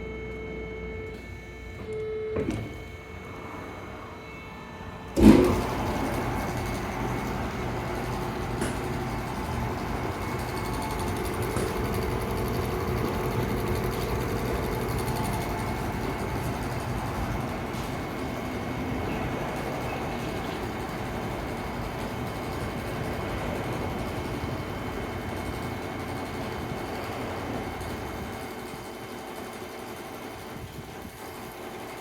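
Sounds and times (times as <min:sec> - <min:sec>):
band saw running: 0:03.3 - 0:27.8.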